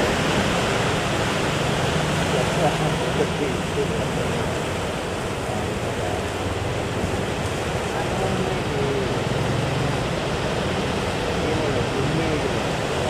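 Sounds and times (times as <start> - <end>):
surf breaking: 0.0 - 13.0
faint voices talking: 2.2 - 13.0.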